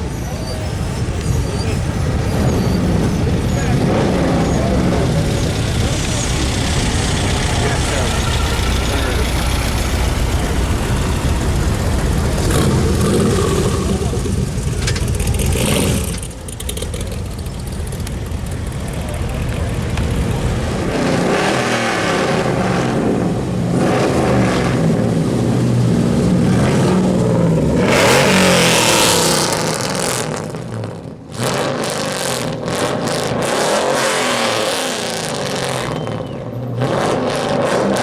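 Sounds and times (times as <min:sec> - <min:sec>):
cars passing with engines revving: 0:00.0 - 0:38.0.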